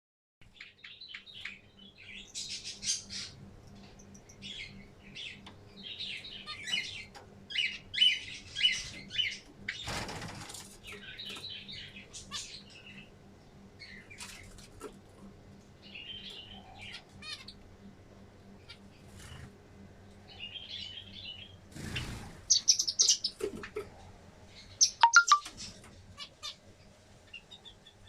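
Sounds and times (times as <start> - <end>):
wings flapping: 9.8 - 10.8
finches chirping: 20.3 - 23.4, 24.6 - 25.5.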